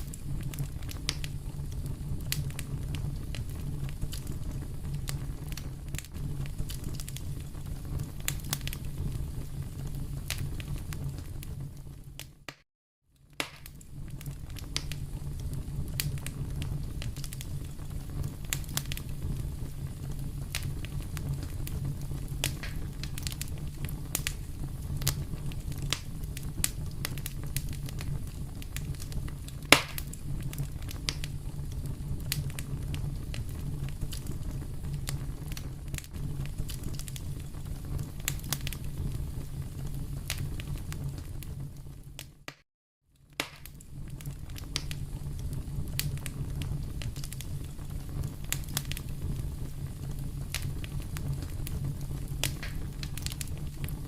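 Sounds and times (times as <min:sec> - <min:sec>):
loud pop of fire: 0:00.0 - 0:11.6, 0:13.3 - 0:41.6, 0:43.3 - 0:54.0
wood fire crackling: 0:00.0 - 0:12.6, 0:13.2 - 0:42.6, 0:43.2 - 0:54.0.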